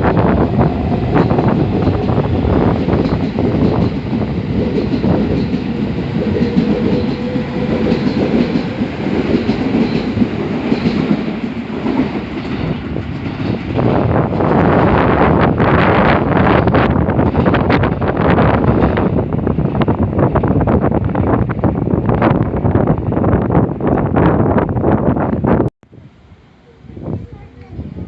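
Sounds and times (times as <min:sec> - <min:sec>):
wheels clacking over rail joints: 0:00.0 - 0:15.6
train rumbling past: 0:00.0 - 0:28.0
wind buffeting microphone: 0:00.0 - 0:28.0.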